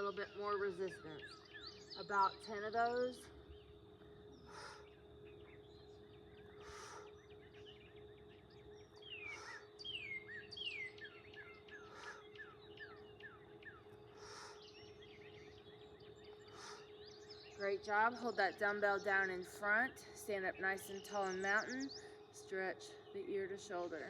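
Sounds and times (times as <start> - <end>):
birds singing: 0.0 - 24.0
faint steady hum: 0.0 - 24.0.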